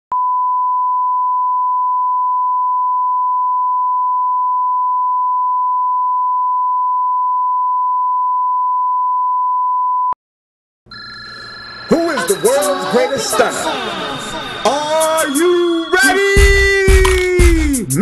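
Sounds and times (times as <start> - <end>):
steady electronic test tone: 10.9 - 17.0.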